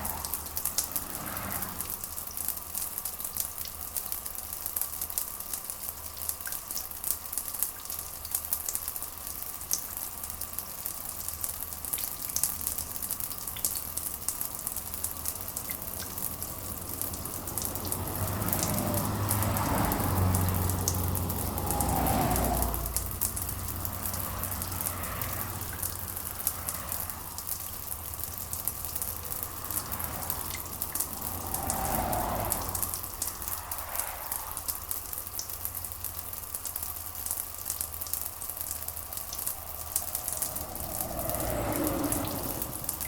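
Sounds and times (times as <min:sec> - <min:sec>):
rain pattering on a surface: 0:00.0 - 0:43.0.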